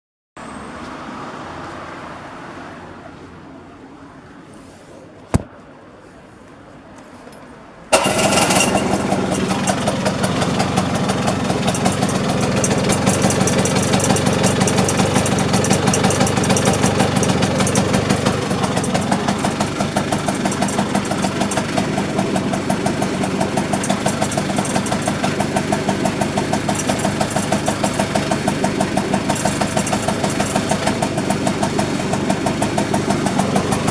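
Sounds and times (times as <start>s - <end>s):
engine running with even pulsing: 8.0s - 33.9s.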